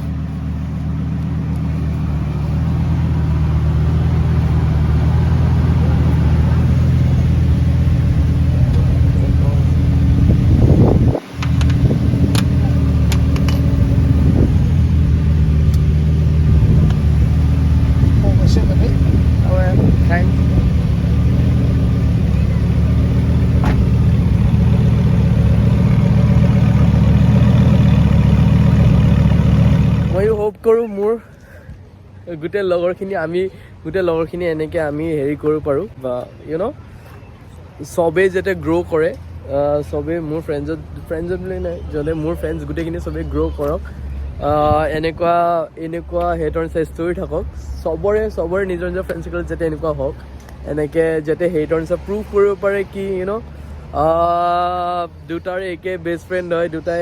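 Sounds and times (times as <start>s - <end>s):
car engine running: 0.0s - 30.5s.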